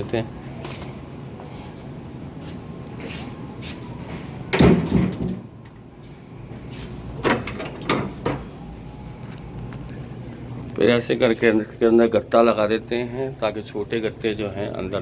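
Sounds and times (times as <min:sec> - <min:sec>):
heavy metal door banging shut: 0:04.5 - 0:05.5.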